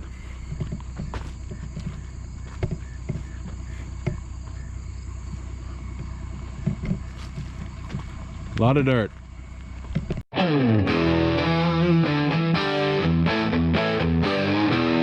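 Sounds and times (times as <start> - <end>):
crickets chirping: 0.0 - 10.2
low hum: 0.0 - 15.0
faint knocks: 0.4 - 4.6.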